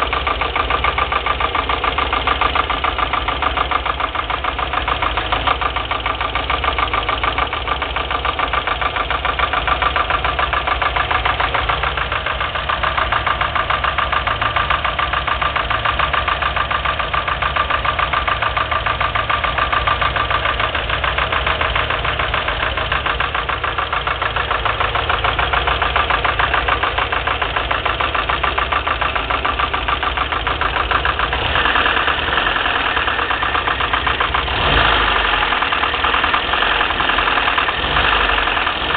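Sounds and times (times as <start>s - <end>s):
petrol engine idling: 0.0s - 38.9s
rapid metallic engine knock: 0.0s - 38.9s.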